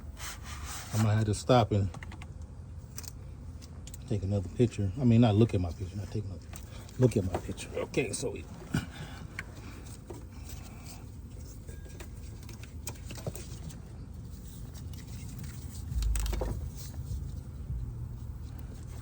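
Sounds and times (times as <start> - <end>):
light clicks and rattles: 1.8 - 4.2, 9.3 - 19.0
low rumble: 15.8 - 19.0
heavy low thump: 16.0 - 16.8.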